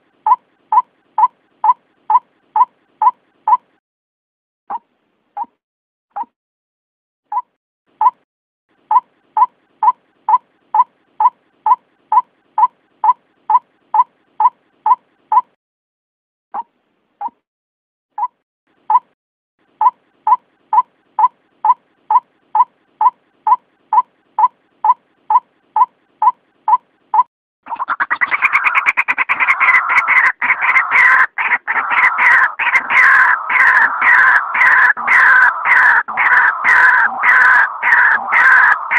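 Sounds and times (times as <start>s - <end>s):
harsh croaking bird chorus: 27.7s - 38.9s.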